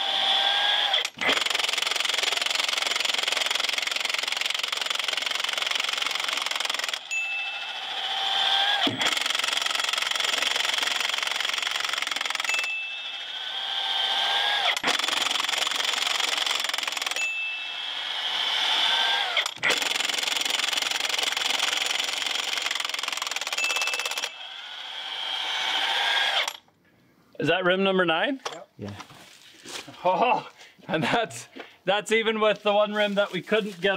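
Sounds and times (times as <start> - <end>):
impact wrench hammering: 8.6 - 13.2.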